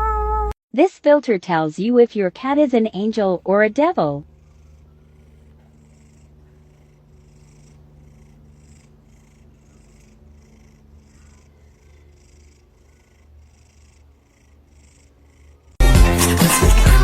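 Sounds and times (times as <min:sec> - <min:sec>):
cat purring: 0:02.8 - 0:15.9.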